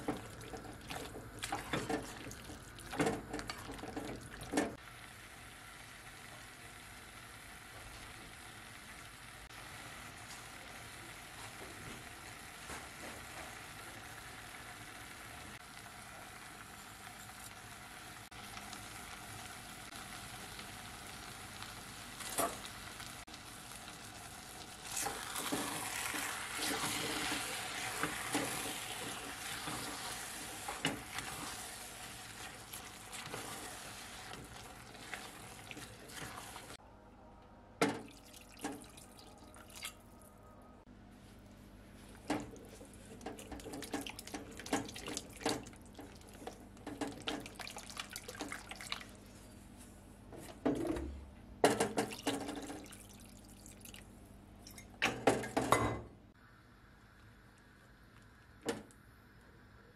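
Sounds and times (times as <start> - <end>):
stirring and scraping: 0.0 - 4.8, 24.8 - 36.8, 41.2 - 49.5
vegetables sizzling in a pot: 0.0 - 36.8.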